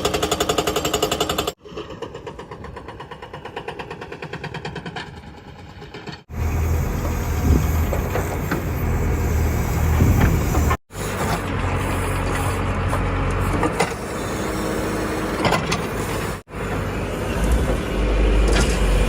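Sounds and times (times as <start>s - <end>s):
heavy diesel engine running: 6.3s - 19.0s.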